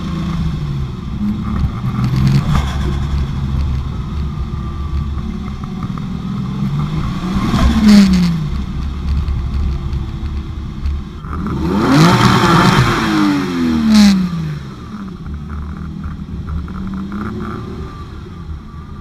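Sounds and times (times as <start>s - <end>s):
turbocharged engine revving: 11.2s - 18.3s.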